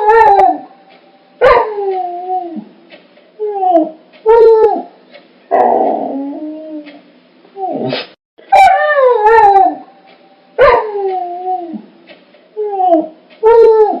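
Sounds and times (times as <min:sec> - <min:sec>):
dog yelping barks and howls: 0:00.0 - 0:00.7, 0:01.4 - 0:02.7, 0:03.4 - 0:04.9, 0:08.5 - 0:09.9, 0:10.6 - 0:11.8, 0:12.6 - 0:14.0.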